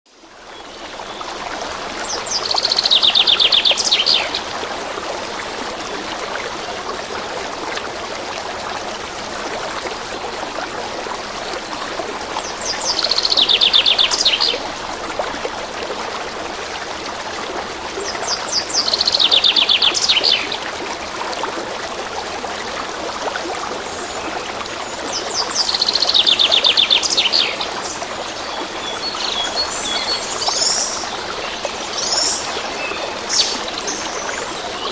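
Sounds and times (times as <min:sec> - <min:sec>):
stream water running: 0:00.1 - 0:34.9.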